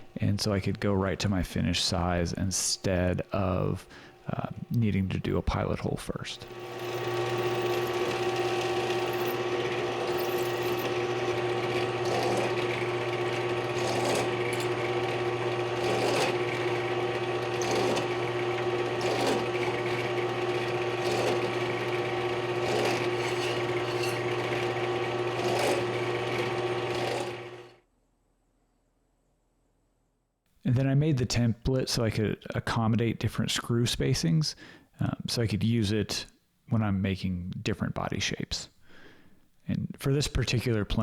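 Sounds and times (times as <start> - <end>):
drill cutting steel: 6.4 - 27.7.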